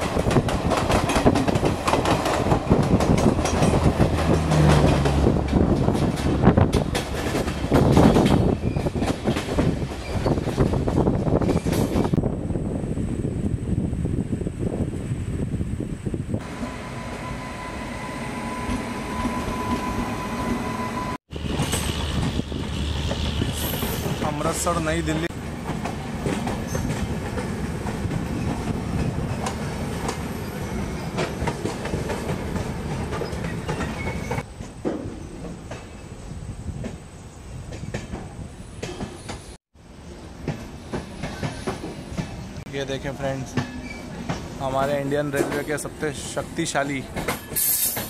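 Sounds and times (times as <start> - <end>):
clickety-clack and rattling: 0.0 - 12.2, 25.6 - 30.2, 31.1 - 35.9, 43.4 - 45.8, 46.9 - 48.0
train wheels rumbling on rail: 0.0 - 48.0.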